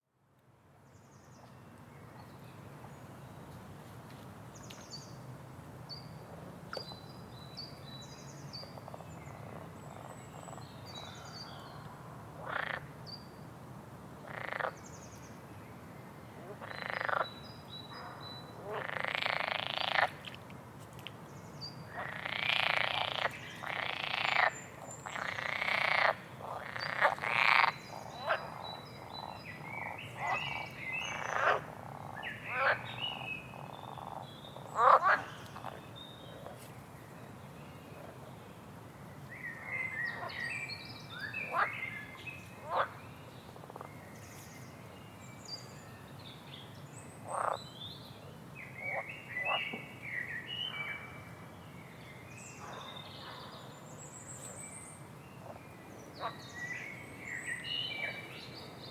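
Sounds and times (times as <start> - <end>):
frogs croaking: 12.4 - 12.9, 14.2 - 14.8, 16.4 - 17.4, 18.0 - 20.3, 21.9 - 35.8, 41.4 - 43.0, 47.2 - 47.6, 48.8 - 49.8.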